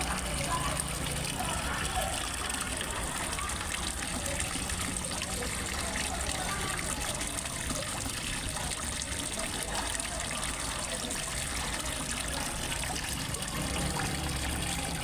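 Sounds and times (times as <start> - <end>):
small waterfall splashing: 0.0 - 15.0.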